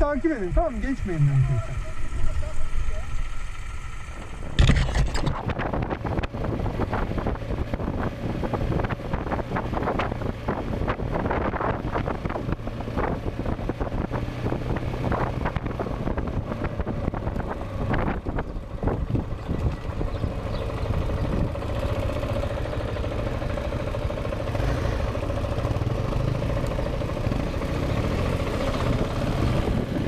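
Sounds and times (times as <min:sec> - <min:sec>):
motorcycle engine running: 0:00.0 - 0:30.0
loud low burst: 0:00.3 - 0:02.5
wind on microphone: 0:04.6 - 0:21.6, 0:28.9 - 0:30.0.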